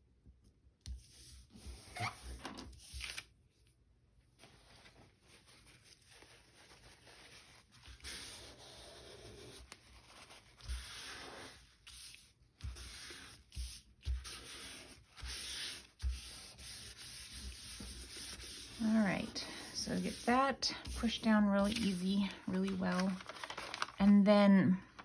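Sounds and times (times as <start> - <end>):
paper being rubbed: 4.6 - 24.0.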